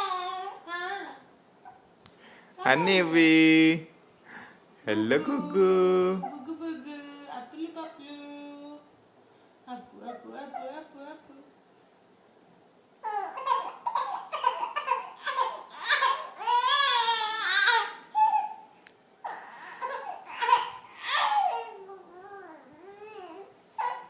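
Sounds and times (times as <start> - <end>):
baby babbling and squealing: 0.0 - 0.6, 13.0 - 18.6, 19.2 - 24.0.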